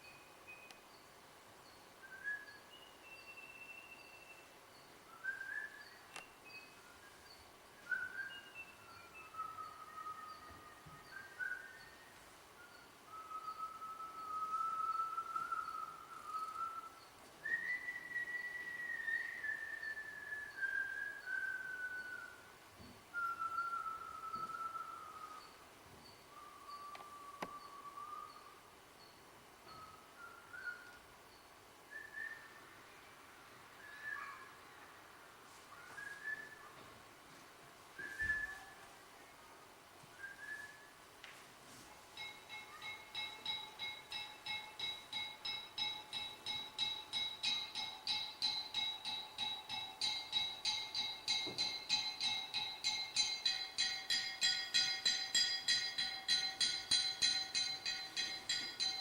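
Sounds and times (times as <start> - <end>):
faint high chirp: 0.0 - 22.5, 23.2 - 33.2, 33.8 - 34.8, 35.7 - 36.9, 38.0 - 39.0, 41.8 - 59.0
high whistled notes: 5.1 - 22.5, 23.2 - 25.6, 38.0 - 38.8, 41.8 - 59.0
long falling whistled notes: 5.1 - 25.6, 26.3 - 28.6, 29.7 - 31.0, 31.9 - 32.8, 35.7 - 36.8, 38.0 - 38.8, 40.1 - 41.0
soft high ticking: 42.1 - 59.0.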